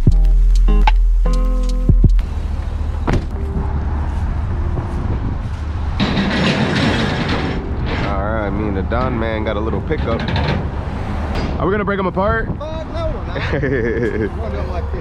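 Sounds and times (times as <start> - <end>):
intro music: 0.0 - 2.3
motor vehicle rumble: 0.0 - 15.0
road noise: 0.0 - 15.0.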